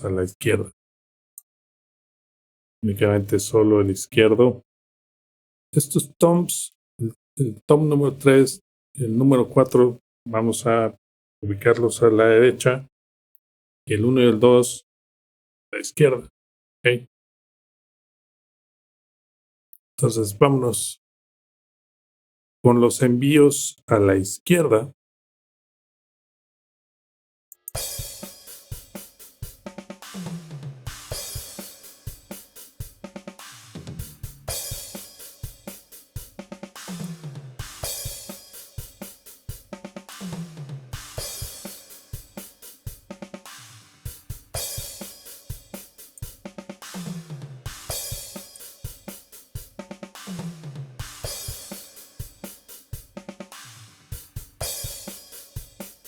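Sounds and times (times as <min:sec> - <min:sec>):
drum kit playing groove: 0:27.6 - 0:56.0
descending tom pattern: 0:27.8 - 0:56.0.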